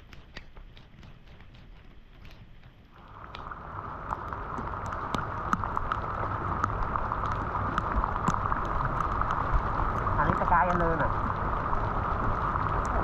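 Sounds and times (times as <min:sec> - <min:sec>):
water flowing and gurgling: 0:02.8 - 0:13.0.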